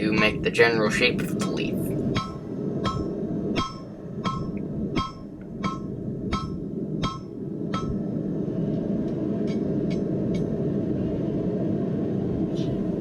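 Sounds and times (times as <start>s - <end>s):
low background noise: 0.0s - 13.0s.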